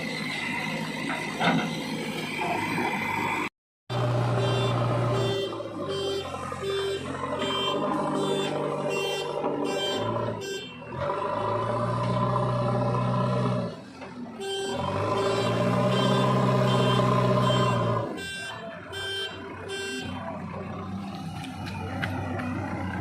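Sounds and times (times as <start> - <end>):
diesel engine revving: 0.0 - 23.0
beeping alarm: 4.3 - 10.9, 14.4 - 20.2.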